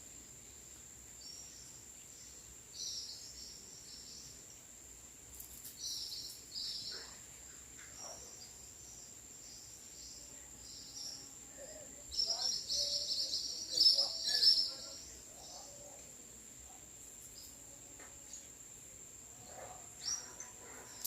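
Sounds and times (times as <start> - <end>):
high-pitched insect trill: 0.1 - 21.0
birds chirping: 5.4 - 17.6, 19.4 - 21.0.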